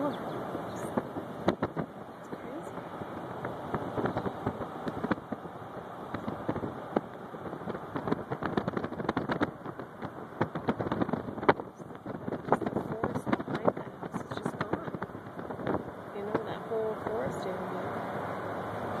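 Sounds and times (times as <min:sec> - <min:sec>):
car road and cabin noise: 0:00.0 - 0:19.0
crackling clicks and pops: 0:03.4 - 0:05.5, 0:06.1 - 0:16.4.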